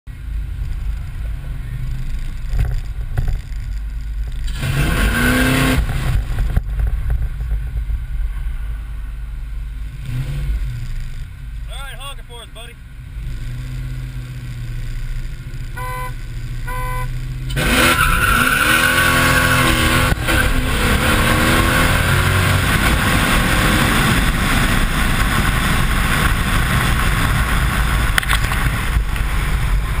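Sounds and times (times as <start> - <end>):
car engine accelerating hard: 4.2 - 7.7, 13.0 - 30.0
car engine idling: 6.2 - 13.2, 14.1 - 17.6
short beeps: 15.8 - 17.1.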